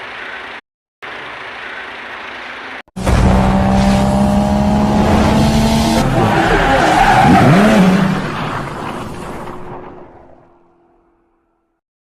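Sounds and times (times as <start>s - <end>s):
motor vehicle rumble and whine: 3.0s - 11.3s.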